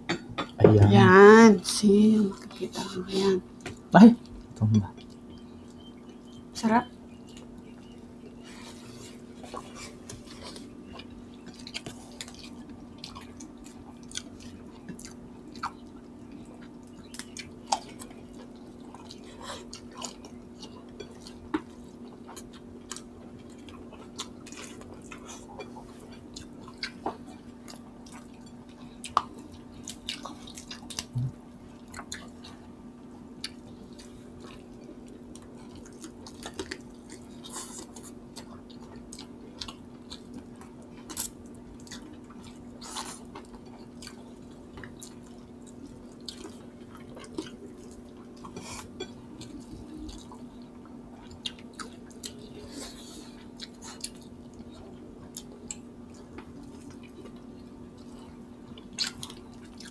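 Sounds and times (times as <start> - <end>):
wet chewing and lip smacks: 9.4 - 32.7, 33.4 - 52.6, 53.4 - 59.9.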